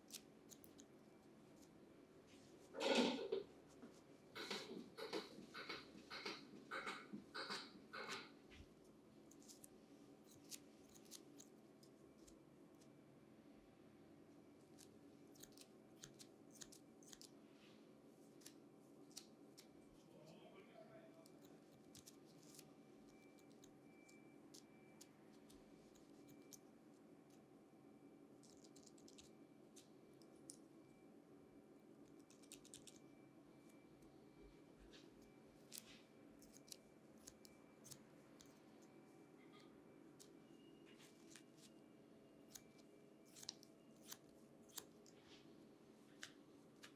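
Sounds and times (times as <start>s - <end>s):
scissors snipping hair: 0.0s - 1.0s, 9.3s - 12.4s, 14.8s - 17.4s, 21.1s - 26.6s, 28.4s - 29.3s, 32.1s - 33.0s, 35.6s - 38.9s, 42.5s - 45.2s
low room hum: 0.0s - 46.9s.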